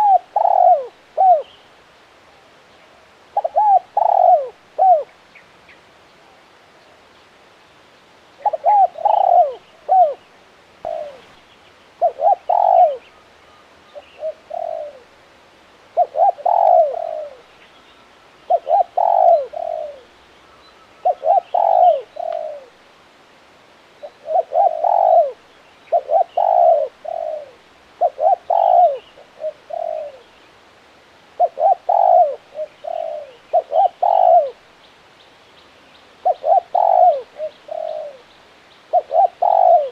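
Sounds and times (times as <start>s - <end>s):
dove cooing: 0.0s - 1.6s, 3.3s - 5.1s, 8.4s - 11.4s, 12.0s - 13.2s, 13.9s - 15.2s, 15.9s - 17.5s, 18.4s - 20.2s, 20.8s - 22.8s, 24.0s - 30.4s, 31.3s - 34.6s, 36.2s - 39.9s.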